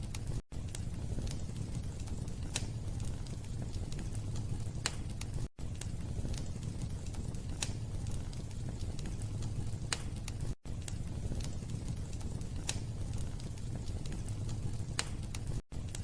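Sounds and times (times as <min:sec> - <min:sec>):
rumble of fire flames: 0:00.0 - 0:16.0
wood fire crackling and popping: 0:00.0 - 0:16.0.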